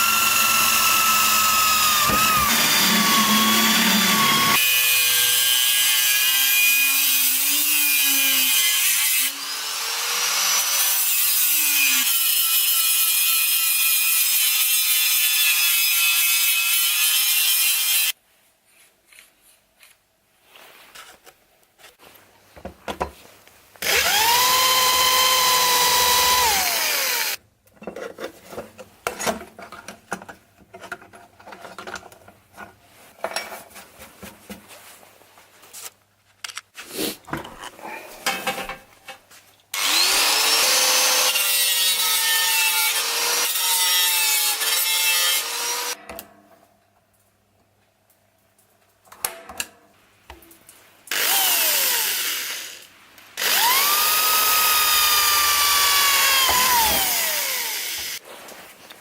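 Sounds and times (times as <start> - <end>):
power tool cutting whine: 0.0 - 12.2, 23.8 - 27.4, 39.8 - 43.8, 51.1 - 52.8, 53.4 - 58.2.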